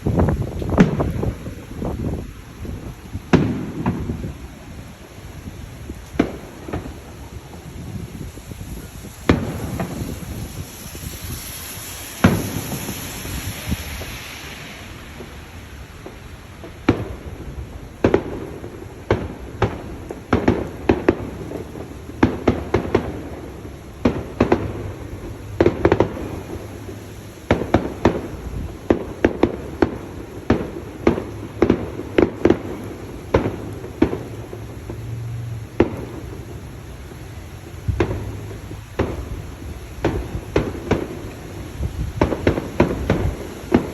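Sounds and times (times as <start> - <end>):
brief hissing: 10.0 - 15.5.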